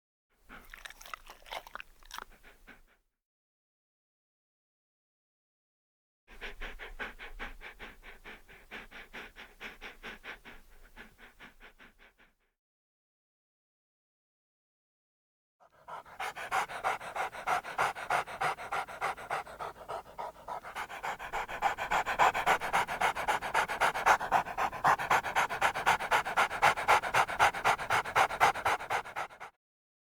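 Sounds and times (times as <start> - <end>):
dog panting: 0.5 - 3.0, 6.3 - 12.3, 15.7 - 29.6.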